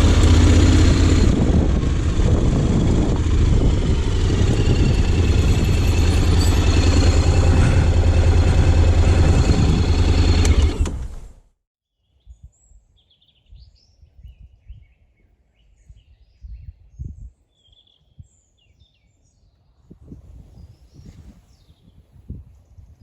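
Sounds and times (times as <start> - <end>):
motorcycle engine running: 0.0 - 11.4
birds chirping: 1.9 - 10.7.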